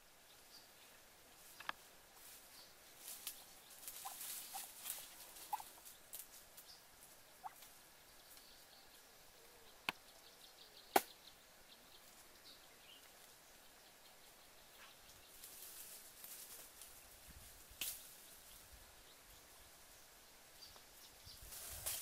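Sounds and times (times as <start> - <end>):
footsteps crunching through dry leaves: 2.2 - 6.6
twigs snapping: 17.8 - 18.1.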